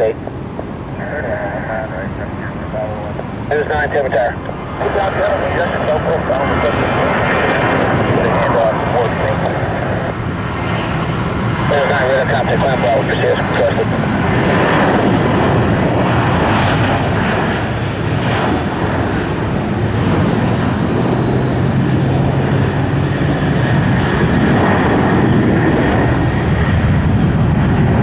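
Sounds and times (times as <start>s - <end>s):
jet engines roaring at takeoff: 0.0s - 28.0s.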